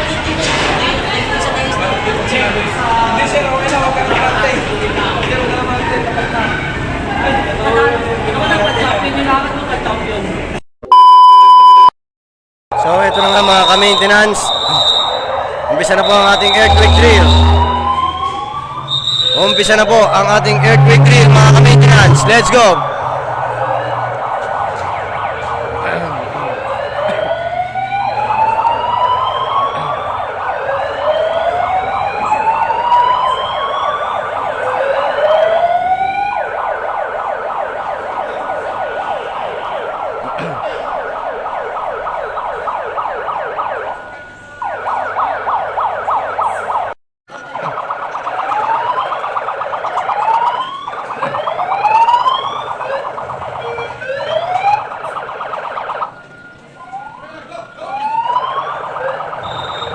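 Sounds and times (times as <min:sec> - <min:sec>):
siren rising in pitch: 0:12.8 - 0:25.8, 0:26.5 - 0:40.1, 0:40.9 - 0:59.9
fast-pulsing alarm tone: 0:13.0 - 0:23.3.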